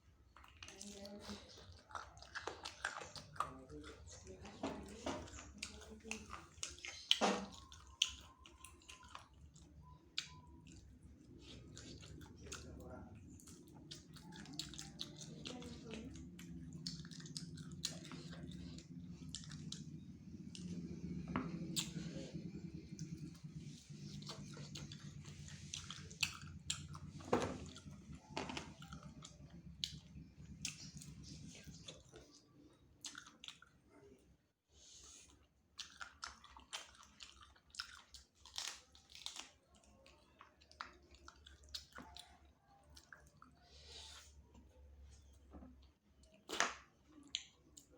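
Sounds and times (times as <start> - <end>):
person chewing wetly: 0.0 - 34.2, 34.8 - 47.9
low steady hum: 0.0 - 34.6.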